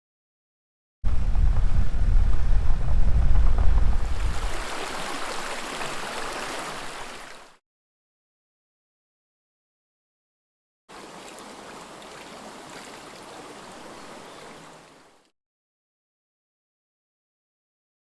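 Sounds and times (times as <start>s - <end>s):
heavy low rumble: 1.0s - 4.6s
stream babbling: 4.0s - 7.6s, 10.9s - 15.3s.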